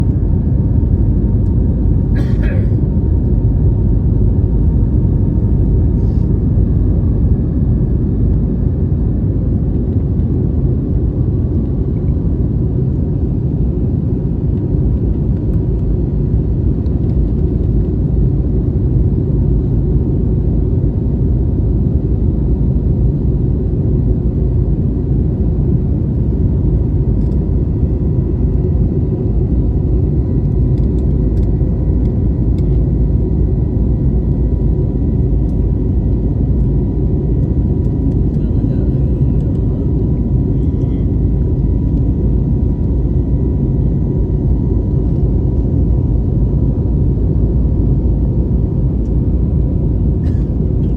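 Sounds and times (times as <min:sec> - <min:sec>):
airliner cabin rumble: 0:00.0 - 0:50.9.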